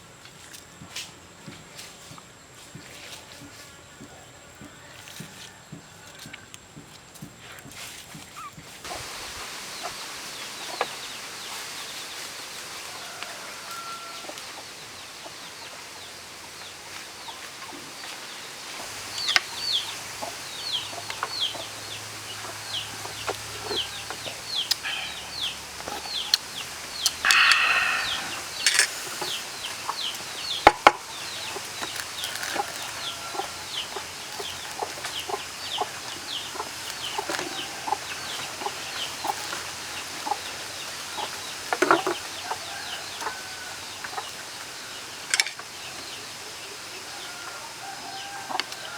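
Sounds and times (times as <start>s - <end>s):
chicks peeping: 8.4s - 48.9s
chicken squawk: 27.0s - 29.5s.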